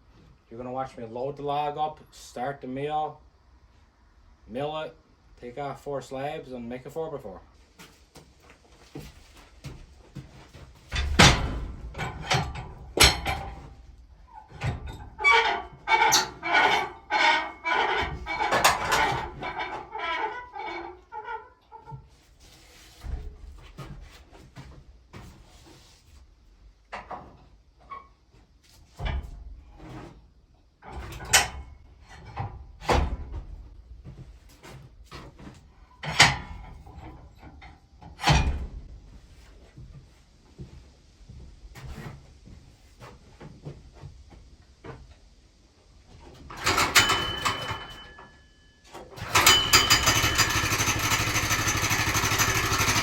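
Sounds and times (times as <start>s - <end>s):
heavy knocks and thuds: 10.8s - 13.6s
ringing metallic clanks: 46.6s - 48.5s, 49.2s - 53.0s.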